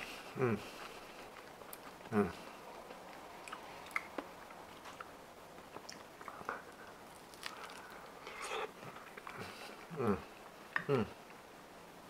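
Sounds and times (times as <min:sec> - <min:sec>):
person chewing: 0:00.0 - 0:11.0
mouth clicks and smacks: 0:02.8 - 0:10.0.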